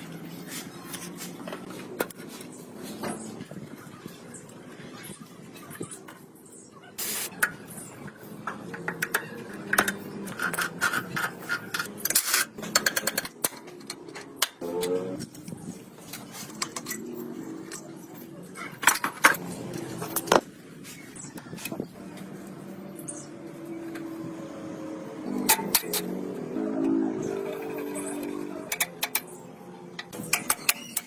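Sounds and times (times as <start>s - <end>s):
sharp clicks and knocks: 7.4s - 14.6s
faint voices: 13.7s - 25.4s.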